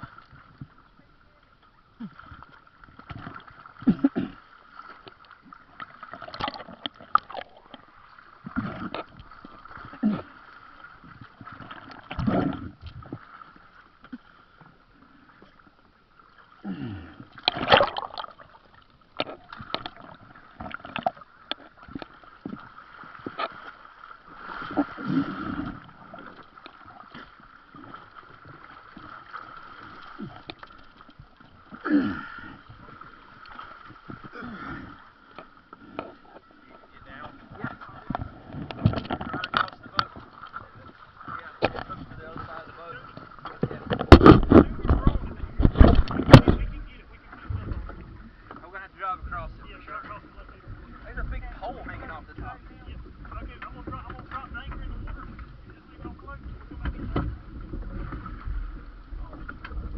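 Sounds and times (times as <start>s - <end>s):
water gurgling and splashing: 0.0s - 59.9s.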